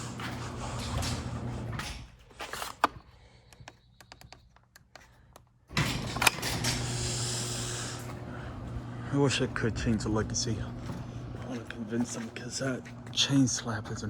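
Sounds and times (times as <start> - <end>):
garage door opener humming: 0.0 - 2.9, 5.6 - 14.0.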